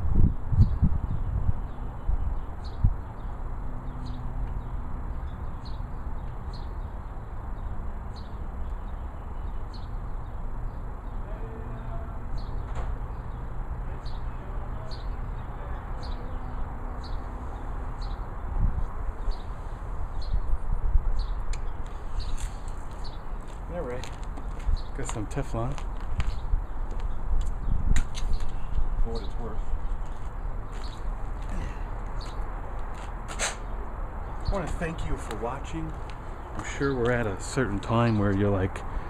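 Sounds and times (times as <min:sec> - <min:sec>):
wind rumbling on microphone: 0:00.0 - 0:06.6, 0:16.6 - 0:35.3
bird chirping: 0:00.6 - 0:32.8.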